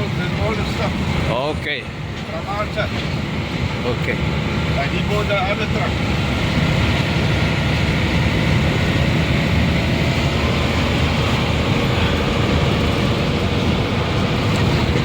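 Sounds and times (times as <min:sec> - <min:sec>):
diesel truck engine droning: 0:00.0 - 0:15.0
road noise: 0:00.0 - 0:15.0.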